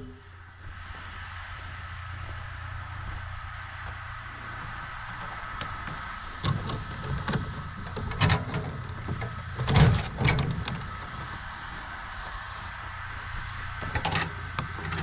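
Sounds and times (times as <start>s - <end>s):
steady low hum: 0.0s - 15.0s
equipment clattering and rattling: 5.2s - 12.0s, 13.8s - 15.0s.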